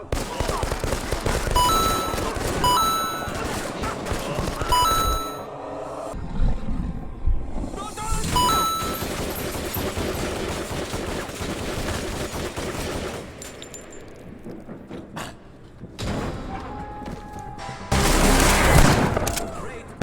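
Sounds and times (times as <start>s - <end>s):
rapid gunfire: 0.0s - 1.6s, 9.8s - 13.2s
music: 17.6s - 18.8s.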